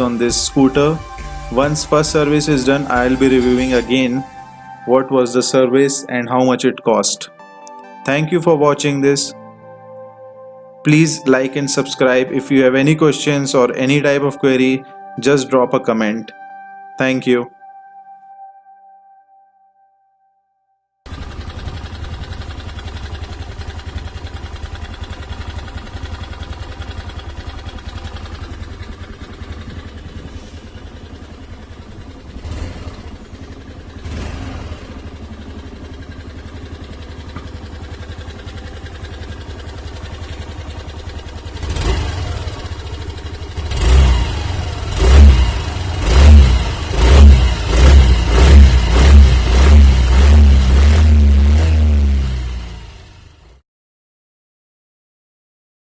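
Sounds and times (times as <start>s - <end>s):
scooter engine idling and revving: 0.0s - 4.7s, 21.1s - 53.6s.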